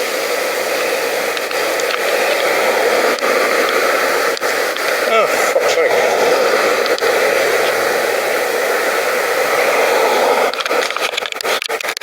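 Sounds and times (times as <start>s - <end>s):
crackling handling noise: 0.0s - 12.0s.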